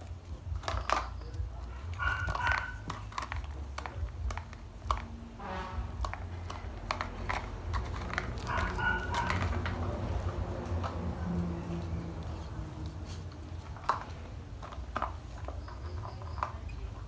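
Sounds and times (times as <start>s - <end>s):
puppy vocal sounds: 1.6s - 3.5s, 7.8s - 13.7s.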